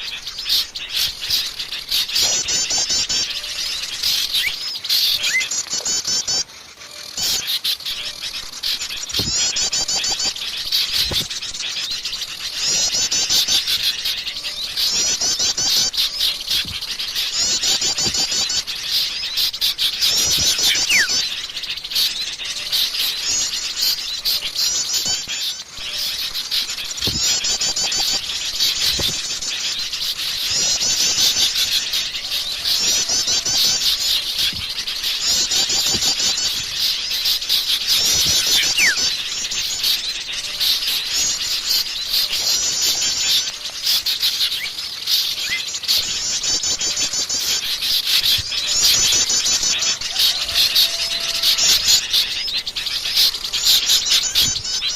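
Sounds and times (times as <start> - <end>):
birds chirping: 0.0 - 54.9
songbirds chattering: 0.0 - 54.9
falling bird whistle: 12.6 - 21.3, 30.4 - 54.9.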